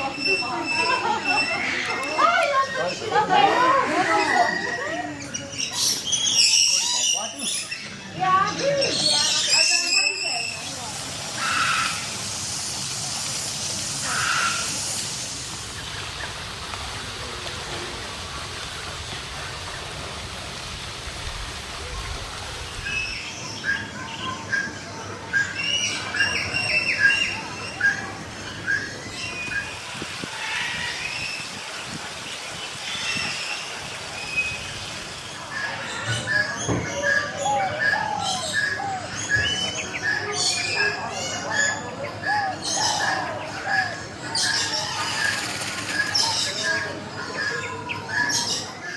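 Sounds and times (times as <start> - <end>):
birds chirping and calling: 0.0 - 16.6, 22.7 - 48.9
rasping bird calls: 11.3 - 12.2, 14.0 - 14.8, 35.2 - 48.8.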